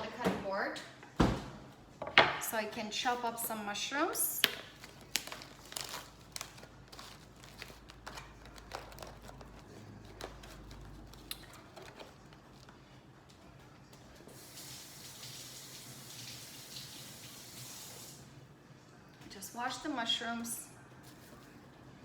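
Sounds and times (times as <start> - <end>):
tap water running into sink: 14.4 - 18.1.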